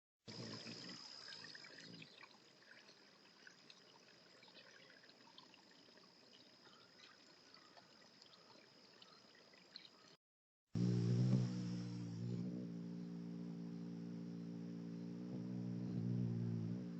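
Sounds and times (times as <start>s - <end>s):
faint trickling water: 0.3s - 10.2s
small ticks: 0.3s - 10.2s.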